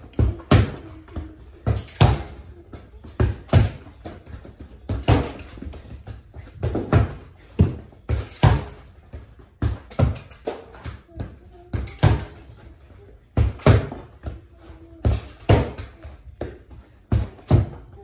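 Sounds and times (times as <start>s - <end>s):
ball kicked against a wall: 3.1s - 12.4s.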